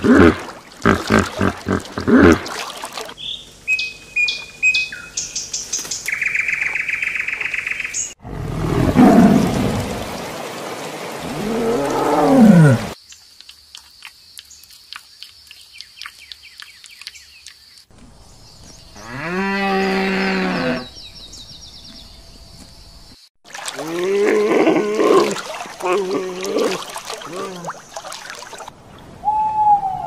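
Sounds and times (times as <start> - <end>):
tiger growl: 8.2 - 9.8, 11.2 - 13.0.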